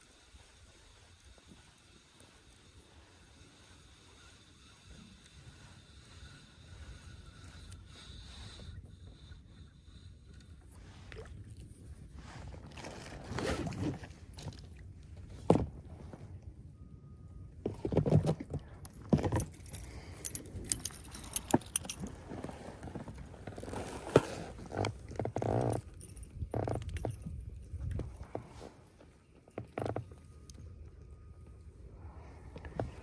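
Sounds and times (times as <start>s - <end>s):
light metallic jingling: 18.9s - 22.2s, 25.4s - 28.2s.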